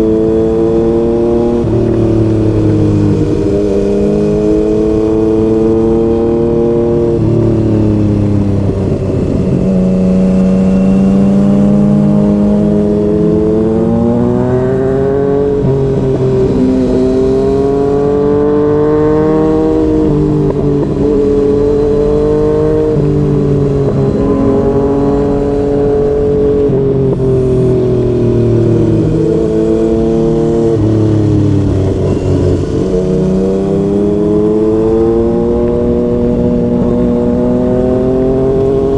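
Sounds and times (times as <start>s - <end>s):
motorcycle engine under way: 0.0s - 38.9s.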